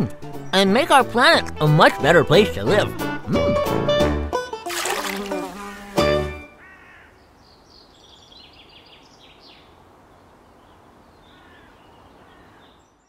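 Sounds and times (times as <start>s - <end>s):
steady outdoor hiss: 4.6s - 13.0s
faint birds chirping: 6.5s - 13.0s.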